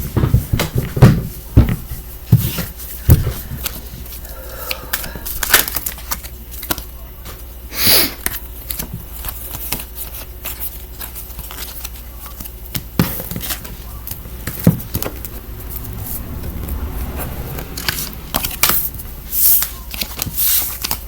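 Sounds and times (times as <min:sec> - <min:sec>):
breathy rush: 0:03.4 - 0:05.7.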